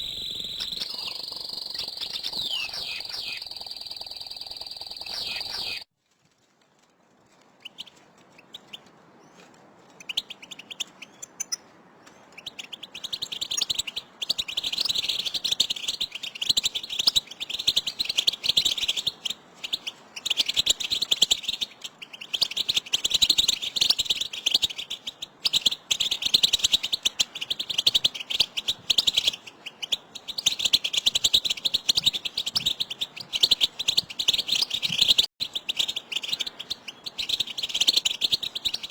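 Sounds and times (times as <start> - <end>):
goldfinches twittering: 0.0 - 5.9.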